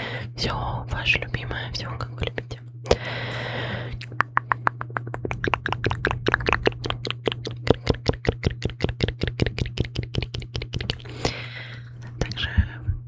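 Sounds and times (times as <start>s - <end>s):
wet mouth clicks and pops: 2.0s - 3.2s, 4.0s - 12.4s.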